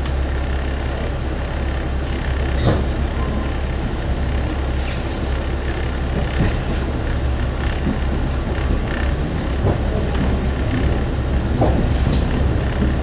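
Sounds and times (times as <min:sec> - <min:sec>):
diesel engine drone: 0:00.0 - 0:13.0
rolling rail noise: 0:00.0 - 0:13.0.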